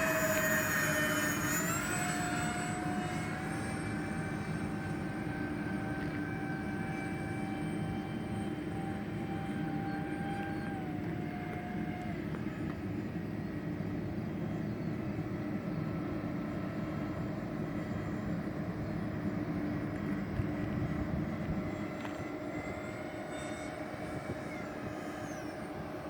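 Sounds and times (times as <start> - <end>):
electric ducted fans whining: 0.0 - 26.0.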